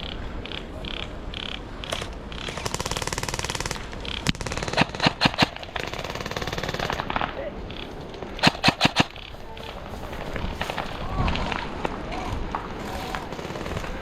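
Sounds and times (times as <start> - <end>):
airsoft gun full-auto burst: 1.9 - 7.2, 8.4 - 9.4, 13.3 - 14.0
airsoft gun single cracks: 8.4 - 9.3.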